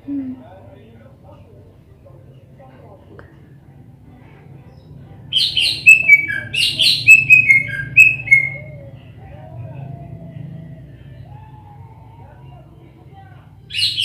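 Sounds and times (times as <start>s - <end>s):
bird singing: 4.7s - 12.7s, 13.7s - 14.0s.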